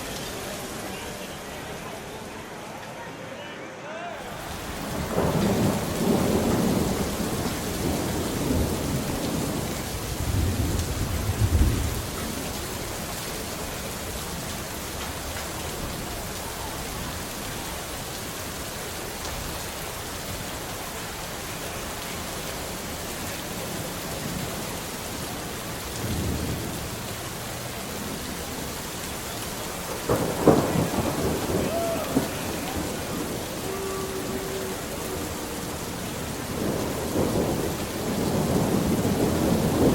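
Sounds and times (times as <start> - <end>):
steady rain: 0.0 - 3.4, 4.0 - 39.9
thunder rumbling: 4.3 - 14.5, 23.5 - 39.9.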